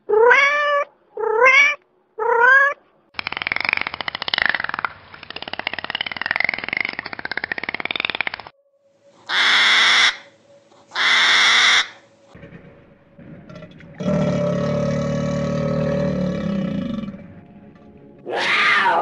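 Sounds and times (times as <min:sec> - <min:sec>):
crocodile low growl: 0:13.2 - 0:17.4.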